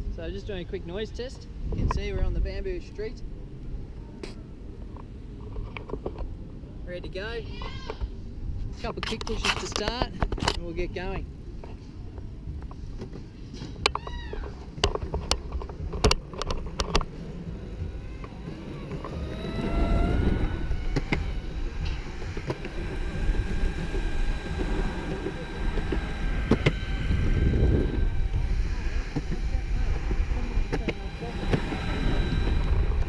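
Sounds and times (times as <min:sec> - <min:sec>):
wheels rolling rumble: 0:00.0 - 0:33.0
electric motor whine: 0:16.8 - 0:33.0.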